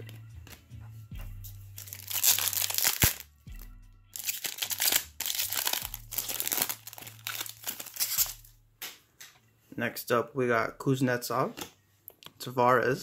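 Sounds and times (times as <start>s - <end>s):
wrapper crinkling and tearing: 1.8s - 3.3s, 4.2s - 8.5s.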